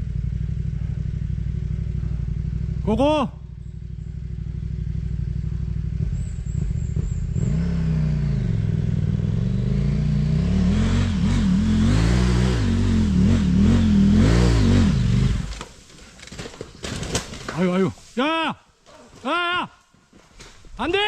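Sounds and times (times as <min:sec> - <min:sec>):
motorcycle engine revving: 0:00.0 - 0:15.7.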